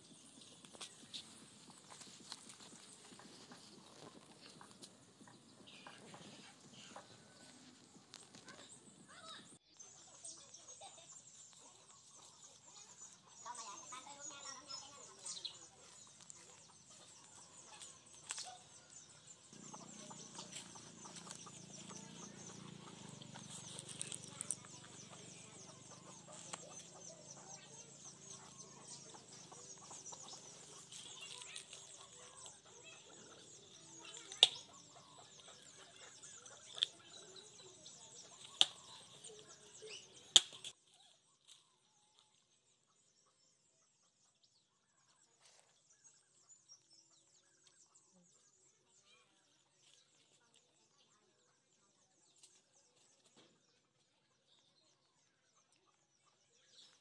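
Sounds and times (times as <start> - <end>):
small birds chirping: 0.0 - 57.0
chickens clucking: 0.2 - 8.8, 10.0 - 40.8.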